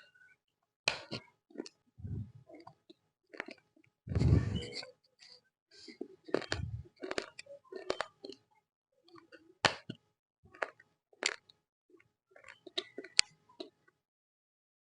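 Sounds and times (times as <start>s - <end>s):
clay being bitten and chewed: 0.9s - 4.7s, 6.1s - 8.4s, 9.1s - 11.6s, 12.3s - 13.8s.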